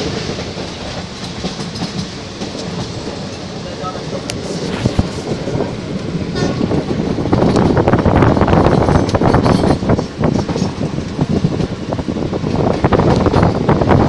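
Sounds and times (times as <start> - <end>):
wheels rumbling on rail: 0.0 - 14.0
rattling and clatter: 7.4 - 11.8.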